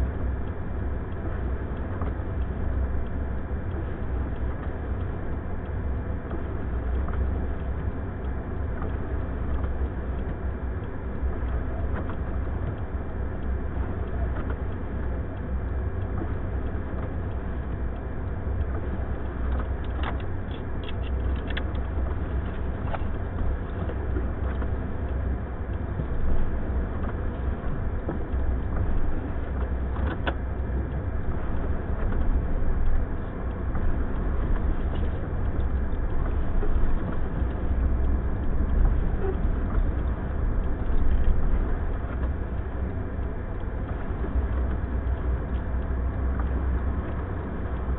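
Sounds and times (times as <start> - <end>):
vehicle low rumble: 0.0 - 47.9
faint clicks: 11.4 - 27.2.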